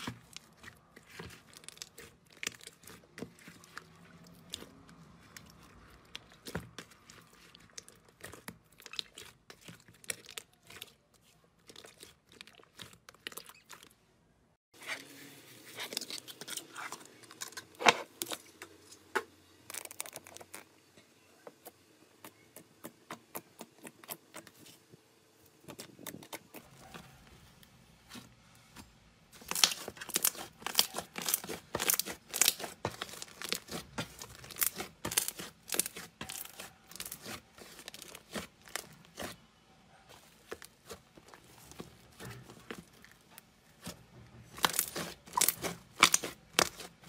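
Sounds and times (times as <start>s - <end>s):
slime squishing with sticky clicks: 0.0s - 14.0s, 29.4s - 39.4s, 40.1s - 47.0s.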